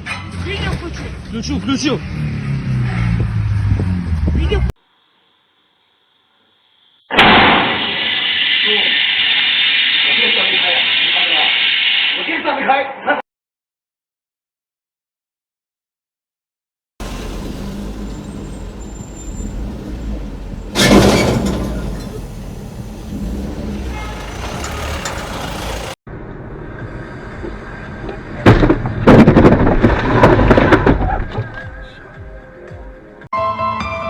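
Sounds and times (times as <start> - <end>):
road and vehicle noise: 0.0 - 5.0, 17.0 - 33.3
sudden crash: 7.1 - 8.1, 17.0 - 26.0
sharp knocks and crunching: 28.5 - 31.4.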